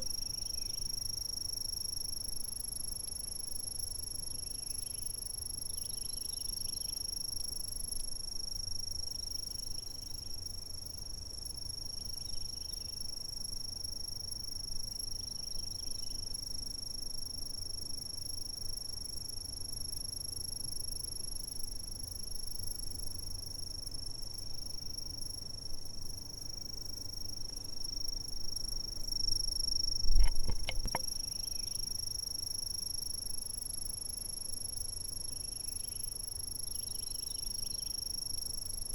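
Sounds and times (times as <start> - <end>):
insects chirring: 0.0 - 8.0, 8.9 - 38.9.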